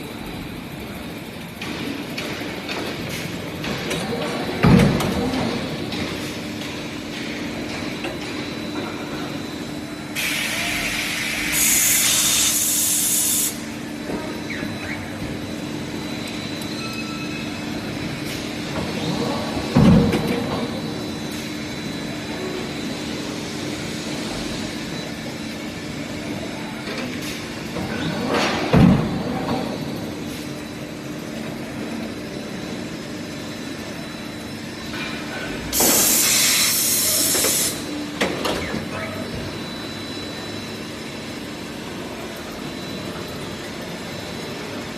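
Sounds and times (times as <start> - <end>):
machinery hum: 0.0 - 44.9
loud air hiss: 10.2 - 13.6, 35.8 - 37.8.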